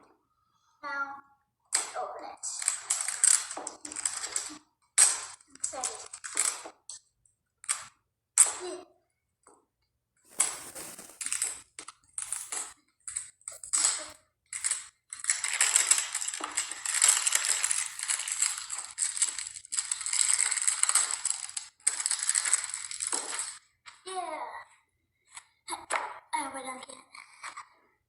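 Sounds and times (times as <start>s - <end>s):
plastic packaging crinkling and tearing: 10.3s - 12.8s, 13.5s - 23.6s.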